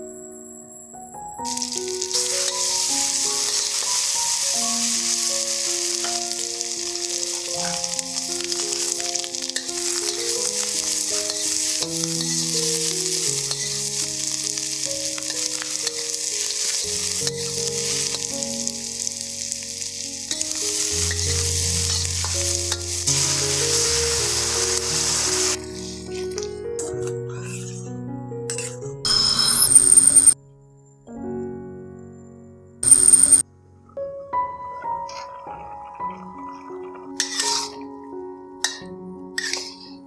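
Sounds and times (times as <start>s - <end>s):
slow background music: 0.0s - 40.0s
meat sizzling in hot oil: 1.4s - 26.2s, 36.3s - 38.0s
metal spatula stirring in wok: 2.0s - 18.4s, 20.3s - 23.9s, 37.2s - 37.8s, 39.4s - 40.0s.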